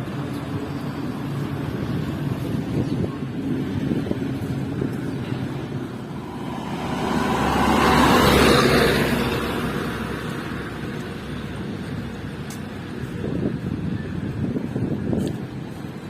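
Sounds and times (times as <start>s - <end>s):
low engine rumble: 0.0s - 16.0s
vehicle passing close by: 3.5s - 11.9s.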